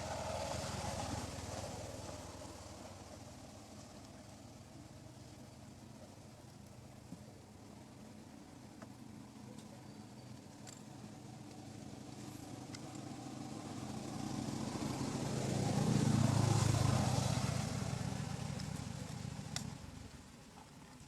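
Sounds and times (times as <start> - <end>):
vehicle passing by: 0.0 - 4.0, 11.6 - 20.1.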